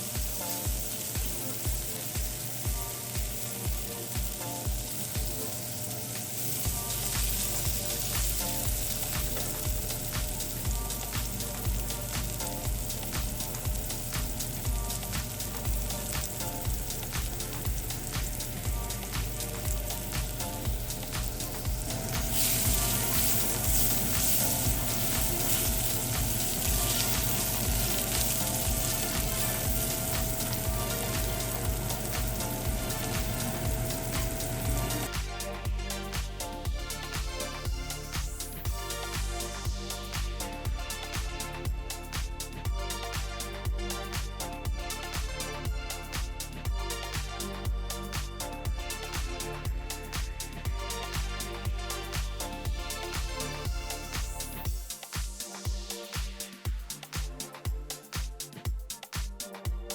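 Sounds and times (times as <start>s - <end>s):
mushrooms sizzling in a skillet: 0.0s - 35.1s
background music with a beat: 0.0s - 59.9s.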